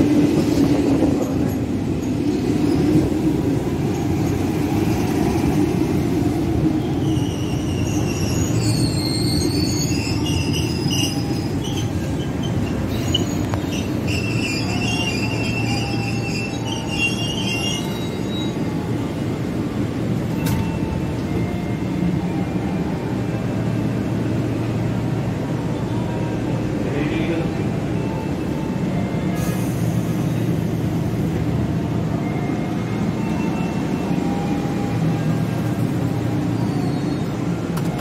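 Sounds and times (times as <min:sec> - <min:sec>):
train rumble: 0:00.0 - 0:38.0
wheels and brakes squealing: 0:02.0 - 0:03.1, 0:06.6 - 0:19.0, 0:32.2 - 0:38.0.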